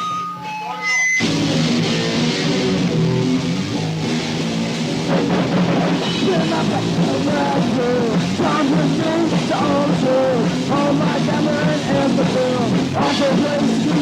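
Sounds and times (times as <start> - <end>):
sliding melody line: 0.0 - 1.4
punk band playing: 0.0 - 14.0.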